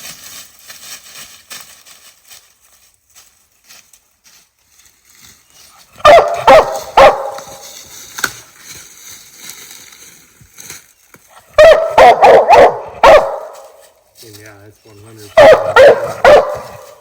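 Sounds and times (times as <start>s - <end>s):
dog barking: 6.0s - 7.6s, 11.6s - 13.7s, 15.3s - 17.0s.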